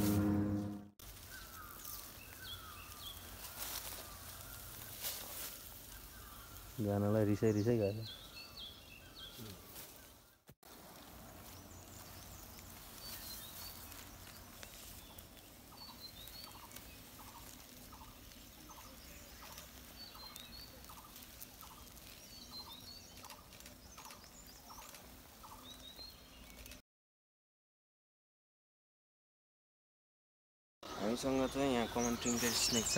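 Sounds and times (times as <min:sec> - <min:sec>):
short lower bird notes: 0:00.0 - 0:00.9.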